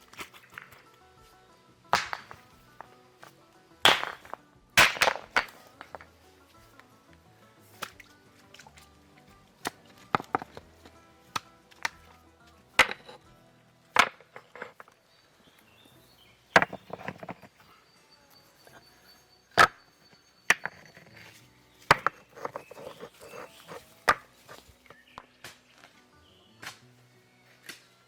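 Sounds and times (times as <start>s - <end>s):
axe chopping wood: 0.0s - 0.9s, 1.9s - 6.9s, 7.6s - 8.8s, 9.4s - 15.0s, 16.5s - 17.6s, 21.8s - 26.0s, 26.6s - 26.9s, 27.6s - 28.0s.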